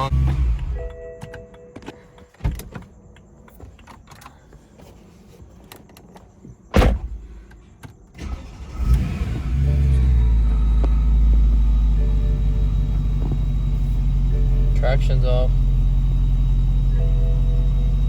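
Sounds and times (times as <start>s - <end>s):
car engine starting and idling: 0.0s - 1.0s, 8.1s - 18.0s.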